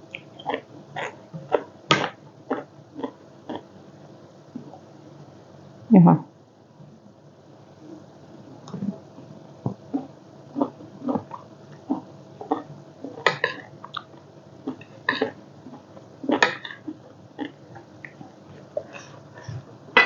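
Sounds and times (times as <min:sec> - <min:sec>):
wet chewing and lip smacking: 0:00.1 - 0:01.7.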